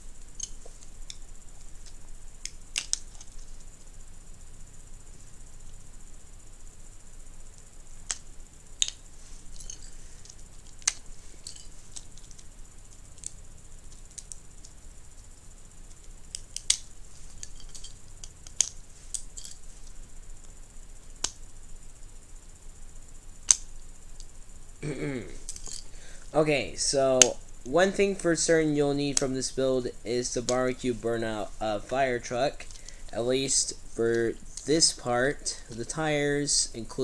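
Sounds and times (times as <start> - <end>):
plastic bricks clicking and snapping: 2.4 - 3.4, 15.9 - 19.6, 23.5 - 23.7.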